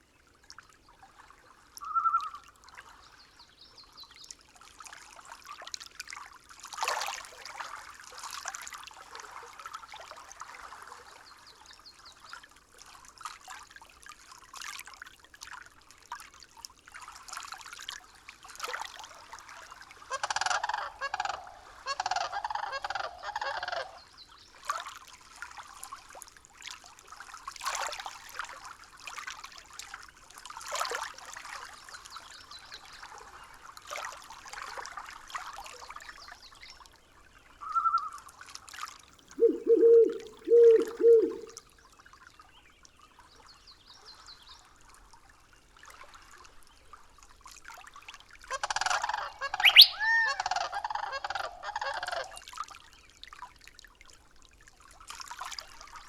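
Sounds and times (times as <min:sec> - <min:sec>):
birds calling: 0:39.2 - 0:41.6, 0:49.4 - 0:50.5.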